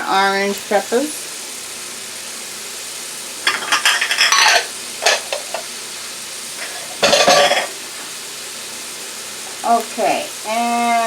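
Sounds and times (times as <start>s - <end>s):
vegetables sizzling in a frying pan: 0.0s - 11.0s
stirring vegetables in a pan: 3.4s - 8.2s.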